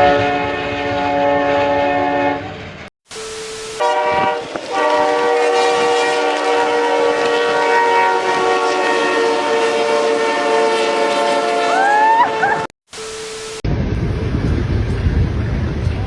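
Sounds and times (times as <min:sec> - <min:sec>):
train horn chord: 0:00.0 - 0:02.7, 0:03.8 - 0:12.7.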